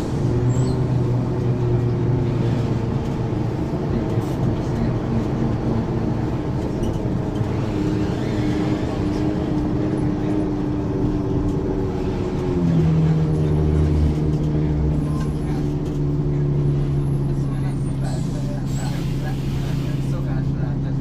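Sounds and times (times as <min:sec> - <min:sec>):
bus diesel engine running: 0:00.0 - 0:21.0.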